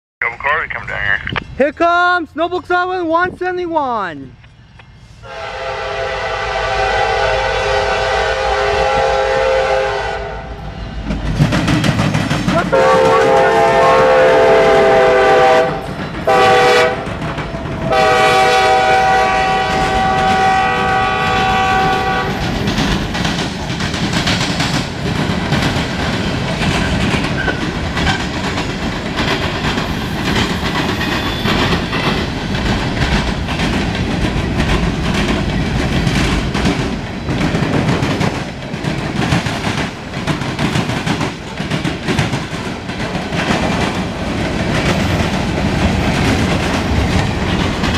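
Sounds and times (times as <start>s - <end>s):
locomotive horn blasts: 5.2s - 10.6s, 12.7s - 17.0s, 17.9s - 22.4s
wheels clacking over rail joints: 11.0s - 13.4s, 21.3s - 47.9s.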